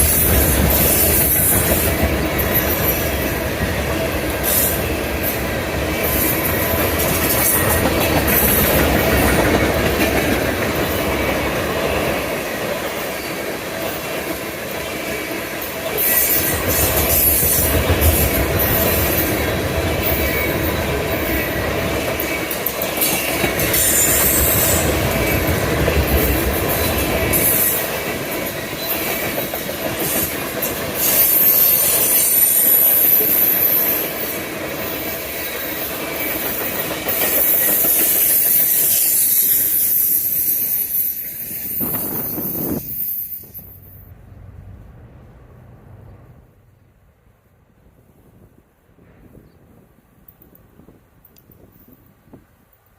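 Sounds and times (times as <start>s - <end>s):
freight train rolling past: 0.0s - 52.8s
wheel squeal: 23.0s - 25.4s, 31.0s - 34.3s, 37.2s - 43.8s.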